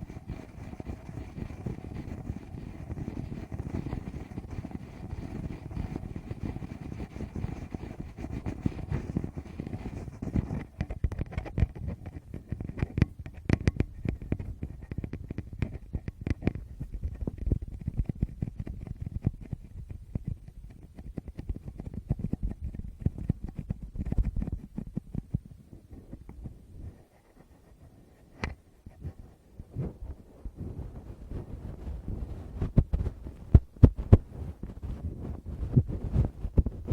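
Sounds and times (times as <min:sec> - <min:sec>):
fingers tapping on microphone: 0:00.0 - 0:25.5, 0:32.1 - 0:36.9
fingers rubbing on microphone: 0:00.0 - 0:36.9.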